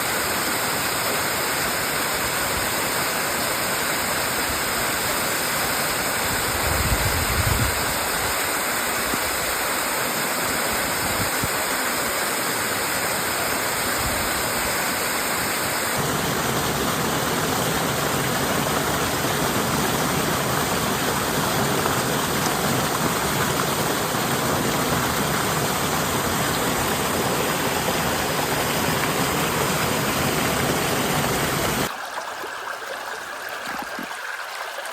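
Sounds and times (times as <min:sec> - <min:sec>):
waterfall rushing: 0:07.8 - 0:32.0.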